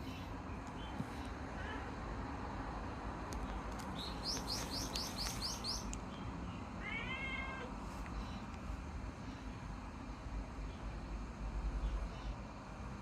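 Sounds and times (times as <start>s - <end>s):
small bird chirping: 3.4s - 6.7s
cat meowing: 6.8s - 7.7s.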